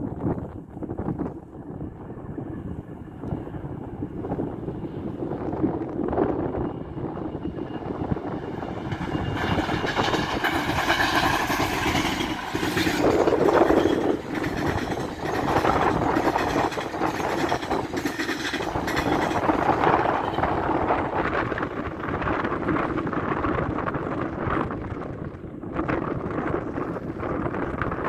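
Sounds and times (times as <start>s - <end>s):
passing train engine rush: 0.0s - 28.0s
train wheel clatter: 7.3s - 24.8s.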